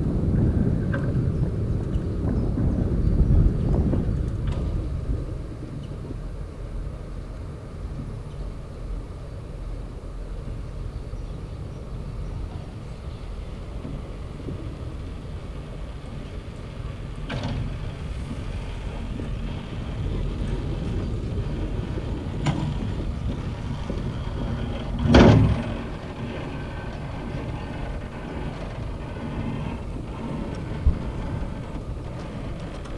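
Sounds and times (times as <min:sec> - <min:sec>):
cable car low rumble: 0:00.0 - 0:32.9
wind on microphone: 0:00.0 - 0:32.9
loud clunk: 0:24.8 - 0:26.0.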